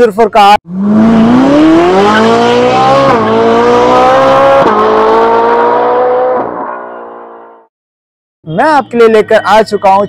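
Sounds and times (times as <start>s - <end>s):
sports car engine accelerating: 0.7s - 7.7s.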